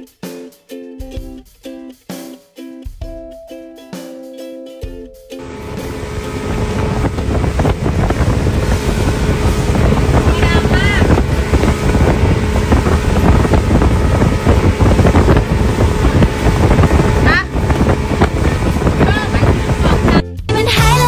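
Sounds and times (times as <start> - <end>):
spray and waves on hull: 5.4 - 20.2
wind buffeting microphone: 5.4 - 20.2
boat engine running: 5.4 - 21.0.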